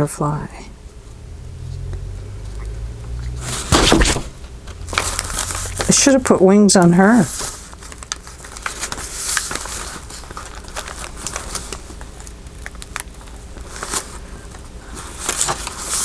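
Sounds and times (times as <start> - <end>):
paper rustling and crinkling: 3.4 - 16.0.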